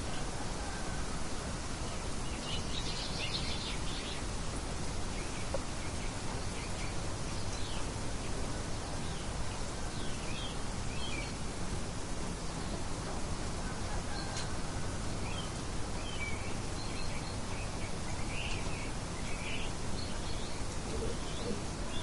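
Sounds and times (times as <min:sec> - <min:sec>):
small birds chirping: 0:01.8 - 0:11.5, 0:15.2 - 0:22.0.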